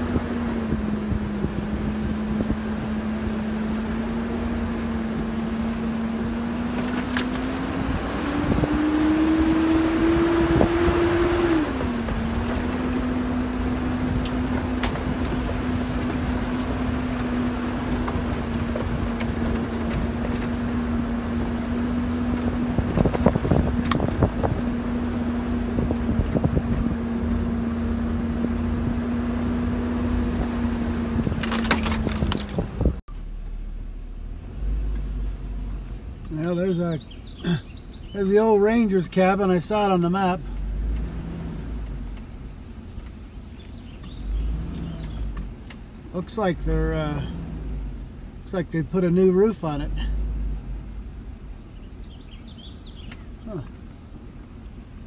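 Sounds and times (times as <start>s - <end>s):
car engine running and revving: 0.0s - 55.0s
knocks and rattles from bumps: 31.1s - 33.0s.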